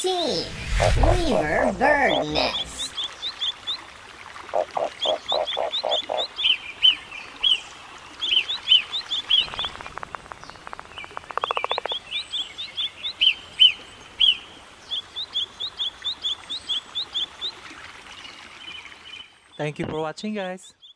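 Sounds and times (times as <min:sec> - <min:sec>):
small birds chirping: 0:00.4 - 0:03.9, 0:04.5 - 0:20.9.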